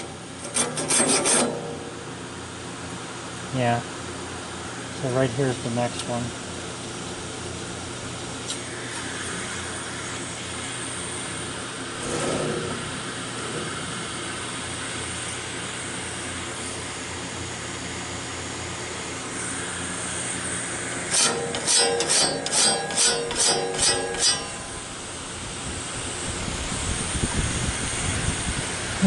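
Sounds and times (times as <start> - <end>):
pneumatic grinder hissing: 8.5 - 14.4, 19.3 - 25.0.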